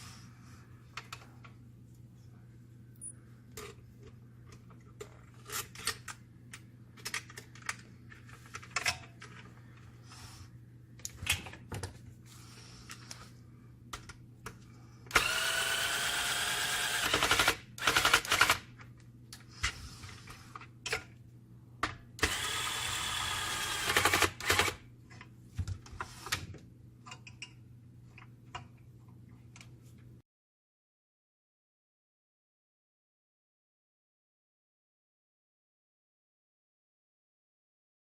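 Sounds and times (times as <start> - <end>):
small electric motor whining: 15.2 - 17.2, 22.2 - 24.3.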